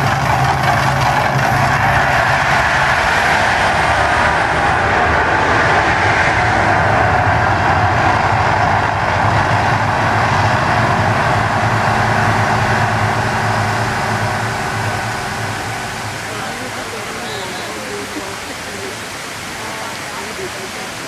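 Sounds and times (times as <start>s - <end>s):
volcano attraction rumbling roar: 0.0s - 21.0s.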